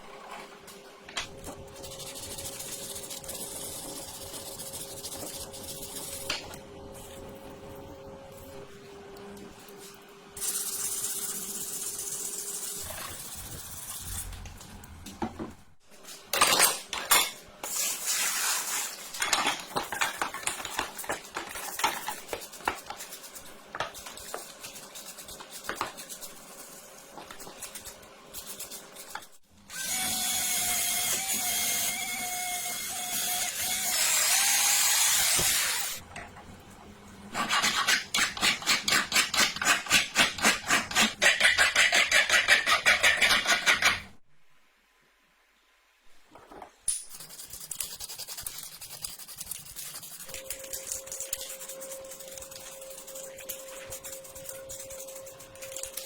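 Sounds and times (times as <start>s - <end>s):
power tool running: 29.7s - 36.0s
quick rhythmic tool strokes: 37.4s - 44.1s.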